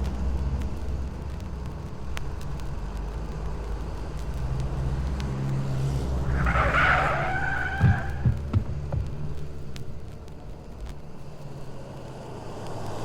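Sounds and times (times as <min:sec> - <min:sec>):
tyres skidding with a squeal: 0:05.9 - 0:09.3
car engine running: 0:06.0 - 0:11.3
short heavy thuds: 0:06.3 - 0:10.0.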